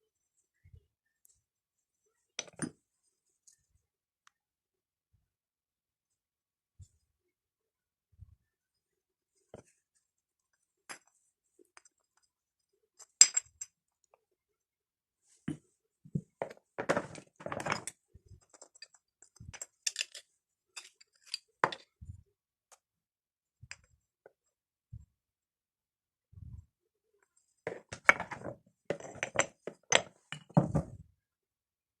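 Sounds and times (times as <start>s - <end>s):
small hard objects clinking: 13.0s - 13.7s, 16.9s - 21.9s.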